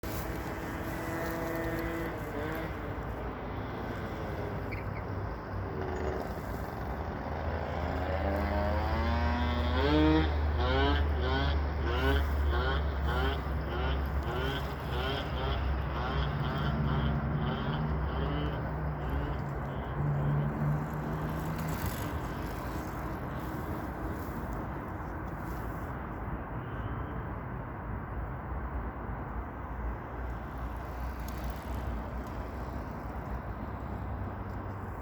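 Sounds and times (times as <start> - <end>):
outdoor rumble: 0.0 - 25.2
vehicle engine hum: 0.0 - 35.0.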